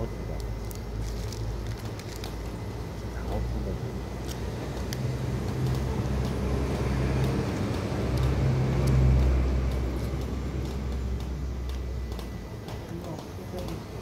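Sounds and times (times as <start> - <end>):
vehicle engine passing: 5.0 - 11.6.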